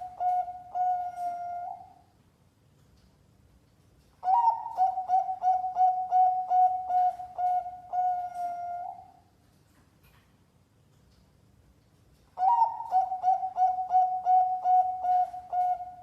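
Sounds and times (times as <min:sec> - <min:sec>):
dove cooing song: 0:00.0 - 0:02.1, 0:04.2 - 0:09.2, 0:12.4 - 0:16.0.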